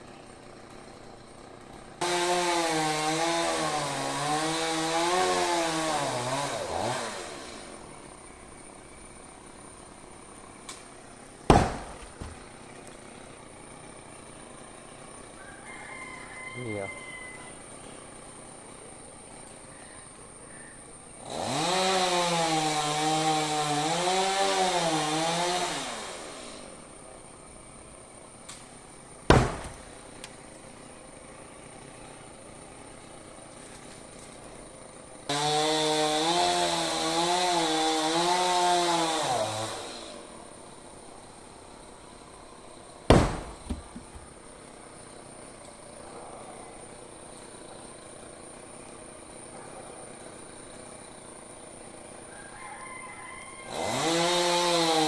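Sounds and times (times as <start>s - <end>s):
chainsaw cutting: 0.0s - 15.4s, 21.2s - 26.9s, 29.0s - 40.4s, 43.1s - 44.5s, 53.7s - 55.0s
sharp impact: 29.3s - 30.0s, 43.1s - 44.2s.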